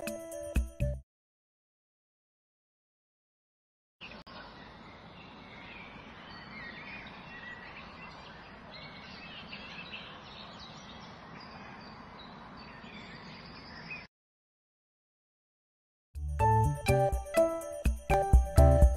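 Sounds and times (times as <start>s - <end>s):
small birds chirping: 4.0s - 14.1s.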